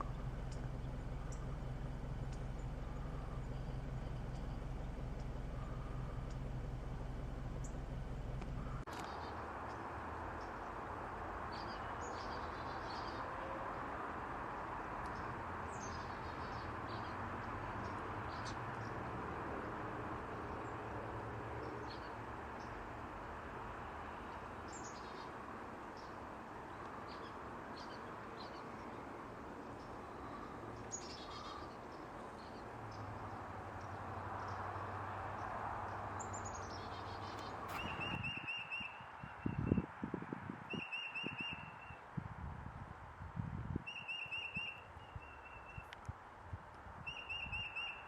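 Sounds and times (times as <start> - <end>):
steady outdoor hiss: 0.0 - 48.0
downward-sliding bird calls: 36.5 - 39.0.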